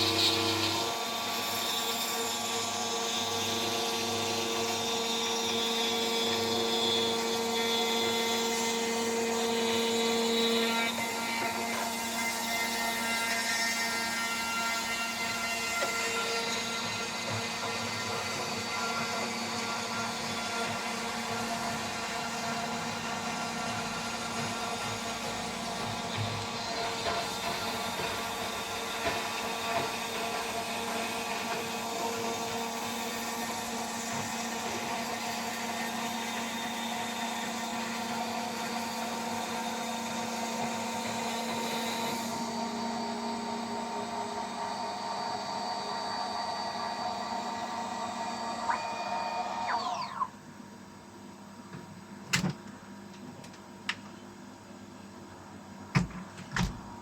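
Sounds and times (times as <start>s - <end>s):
spindle whining: 45.3s - 50.4s.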